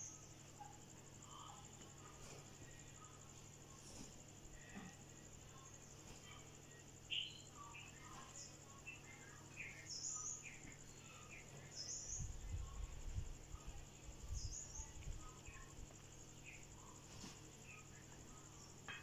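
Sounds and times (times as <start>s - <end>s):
scattered bird chirps: 7.0s - 12.4s.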